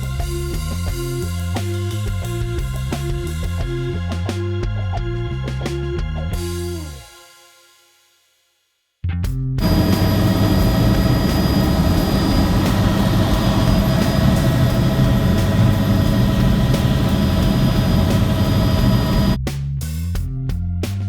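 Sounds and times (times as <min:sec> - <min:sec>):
helicopter engine and rotor noise: 0:09.6 - 0:19.4.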